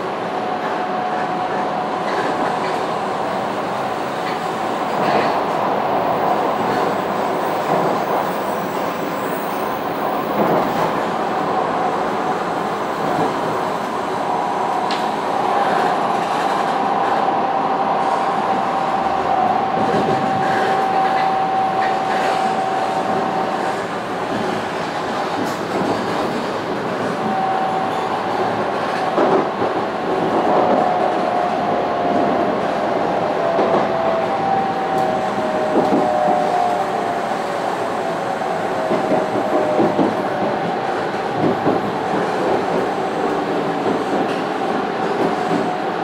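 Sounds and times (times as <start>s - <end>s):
train wheels rumbling on track: 0.0s - 46.0s.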